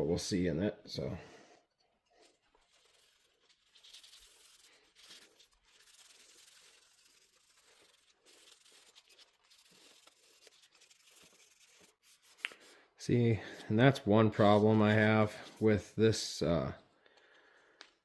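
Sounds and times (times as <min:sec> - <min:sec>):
rubbing and scratching on wood: 0:02.0 - 0:12.8.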